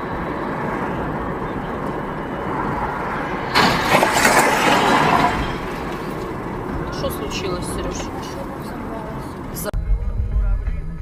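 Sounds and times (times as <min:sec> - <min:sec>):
car road noise: 0:00.0 - 0:10.5
vehicle crash: 0:03.2 - 0:08.5.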